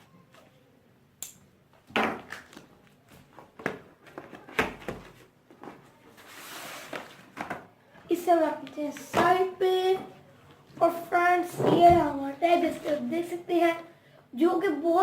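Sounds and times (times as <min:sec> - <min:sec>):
soft sliding rustle: 0:06.1 - 0:07.2.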